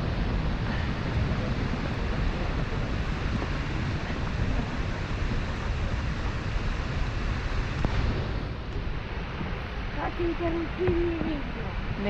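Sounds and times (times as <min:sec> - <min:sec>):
waterfall roaring: 0:00.0 - 0:12.0
wind buffeting microphone: 0:00.0 - 0:12.0.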